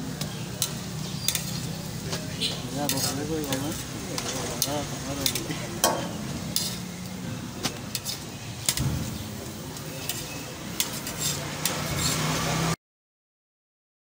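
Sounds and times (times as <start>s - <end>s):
flatbreads sizzling on a griddle: 0.0s - 12.8s
metal tongs clicking on griddle: 0.2s - 2.2s, 2.8s - 7.1s, 7.7s - 12.3s.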